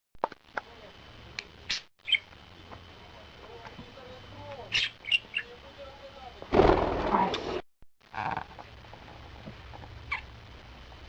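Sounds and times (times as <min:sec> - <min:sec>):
parrot chirping: 0:01.6 - 0:02.4, 0:04.6 - 0:05.6, 0:10.0 - 0:10.3.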